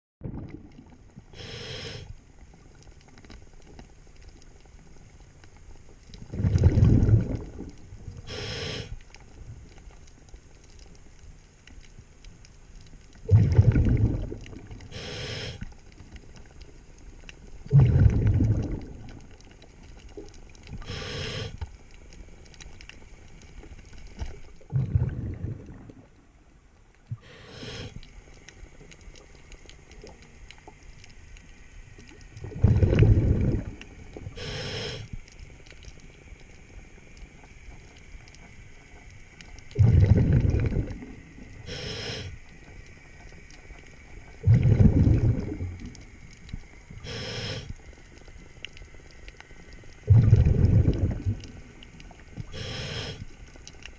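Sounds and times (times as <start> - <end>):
exhaled bubbles rumbling underwater: 0.2 - 53.9
diver inhaling through regulator: 1.3 - 2.2, 8.2 - 9.0, 13.3 - 15.8, 20.8 - 21.6, 27.1 - 28.1, 32.5 - 35.2, 41.6 - 42.4, 47.0 - 47.8, 52.5 - 53.3.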